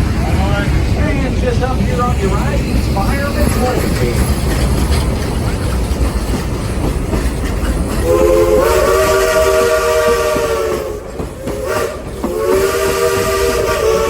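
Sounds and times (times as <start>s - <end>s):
train running rumble: 0.0s - 14.0s
wheels on rails: 0.0s - 14.0s
steam locomotive chime whistle: 8.0s - 14.0s.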